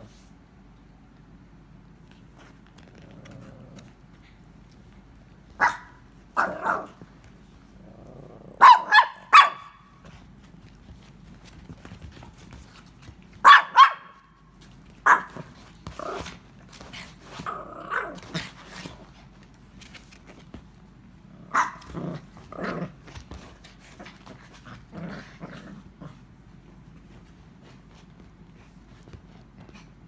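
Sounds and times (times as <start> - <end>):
dog barking: 5.6 - 7.0, 8.6 - 9.9, 13.4 - 14.2, 15.0 - 15.4, 21.5 - 21.8.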